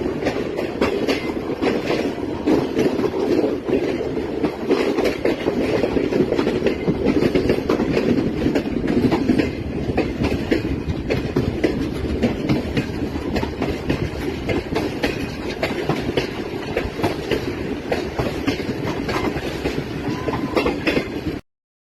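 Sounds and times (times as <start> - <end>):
train rumble: 0.0 - 21.4
train wheels clattering over rails: 0.0 - 21.4.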